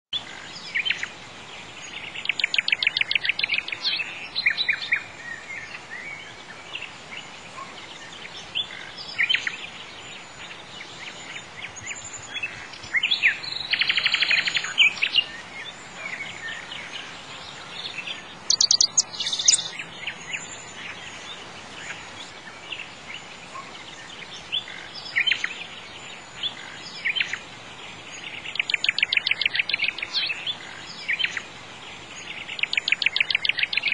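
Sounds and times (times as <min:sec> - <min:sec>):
birds chirping and trilling: 0:00.2 - 0:33.9
steady faint hiss: 0:00.2 - 0:33.9.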